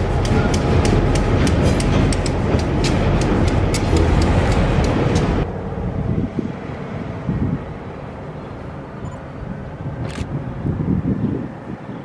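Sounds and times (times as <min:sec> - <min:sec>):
wheels clicking over rail joints: 0:00.0 - 0:05.5
freight train rumbling past: 0:00.0 - 0:12.0.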